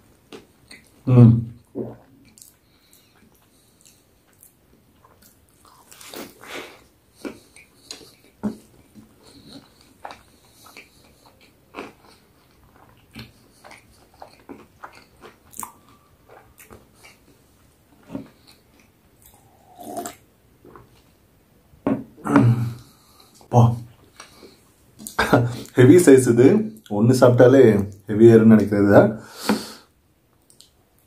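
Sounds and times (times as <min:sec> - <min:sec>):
crunchy chewing: 0:02.2 - 0:17.4.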